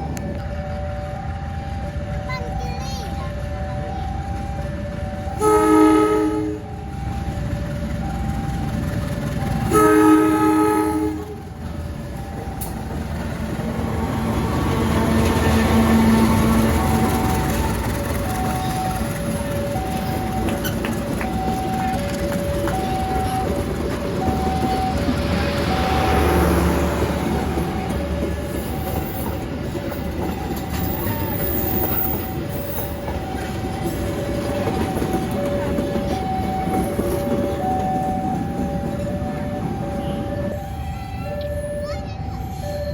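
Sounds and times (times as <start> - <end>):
train rumble and engine: 0.0 - 42.9
train horn blast: 5.3 - 6.8, 9.6 - 11.5.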